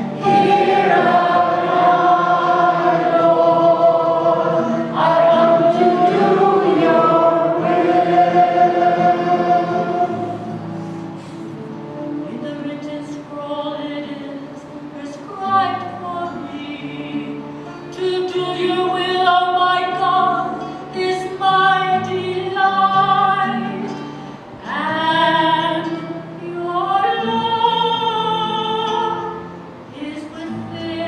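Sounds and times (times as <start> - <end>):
person singing sacred music: 0.0 - 10.6.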